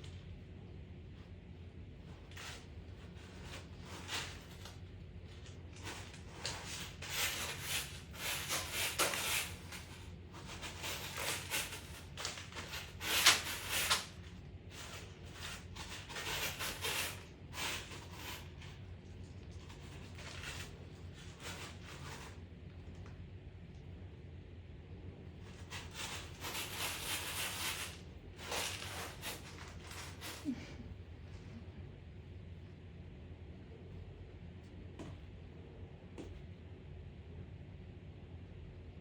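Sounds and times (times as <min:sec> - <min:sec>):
cat scratching in litter: 0:00.0 - 0:23.2, 0:25.3 - 0:31.0.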